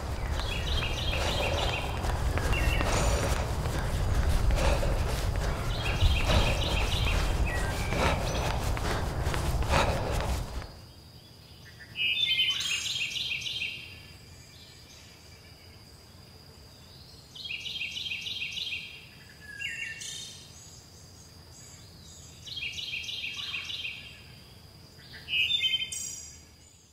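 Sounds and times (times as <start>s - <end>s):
bird chirping: 0.0s - 10.7s.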